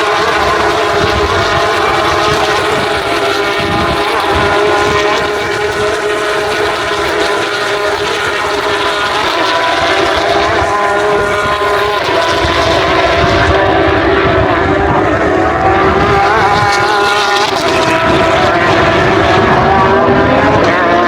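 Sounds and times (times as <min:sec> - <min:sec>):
race car engines at high revs: 0:00.0 - 0:21.0.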